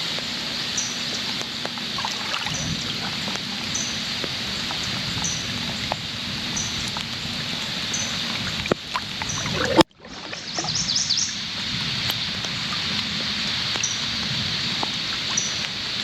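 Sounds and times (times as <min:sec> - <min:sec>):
hiss of water and weather: 0:00.0 - 0:16.0.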